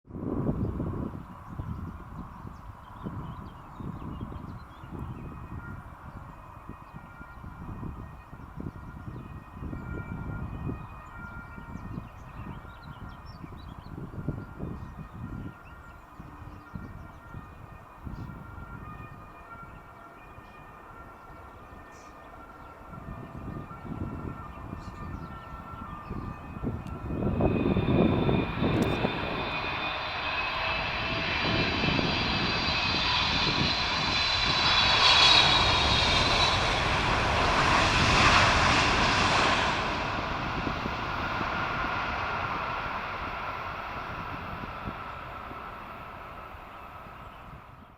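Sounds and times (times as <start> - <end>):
jet engines passing: 11.6 - 47.9
high fan whine: 23.0 - 47.9.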